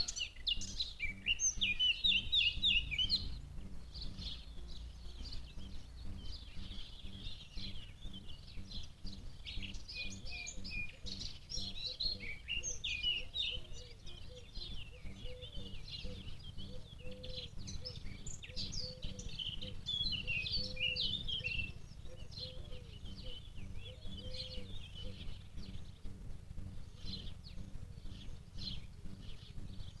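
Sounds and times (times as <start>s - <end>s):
low background rumble: 0.0s - 30.0s
small birds chirping: 0.0s - 30.0s.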